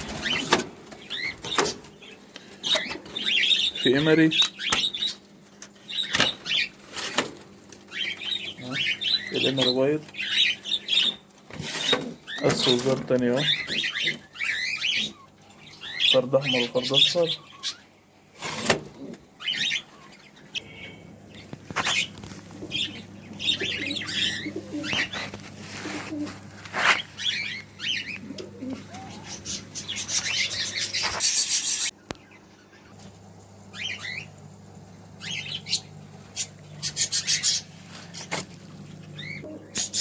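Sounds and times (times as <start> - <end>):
wings flapping in cages: 0.0 - 5.0, 21.4 - 31.4
steady low hum: 0.0 - 31.2, 31.9 - 40.0
cage birds chirping: 0.0 - 40.0.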